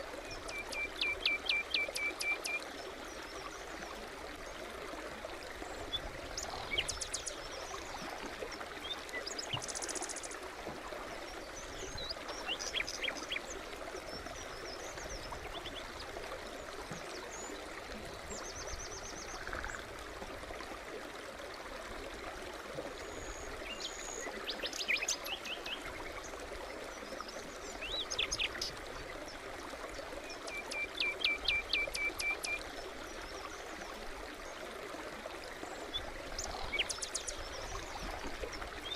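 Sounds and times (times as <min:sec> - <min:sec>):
brook babbling: 0:00.0 - 0:38.9.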